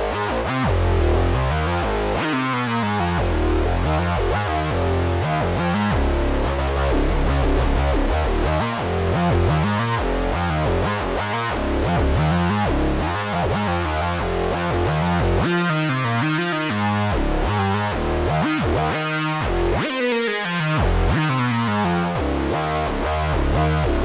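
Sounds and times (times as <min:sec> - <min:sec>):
synthesizer bass line: 0:00.0 - 0:15.6, 0:20.8 - 0:24.0.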